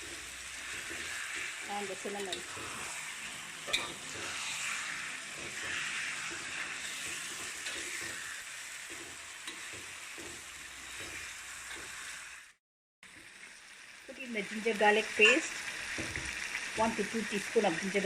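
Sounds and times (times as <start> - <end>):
chicken sizzling in oil: 0.0 - 18.0
spatula scraping mixture: 0.6 - 12.2.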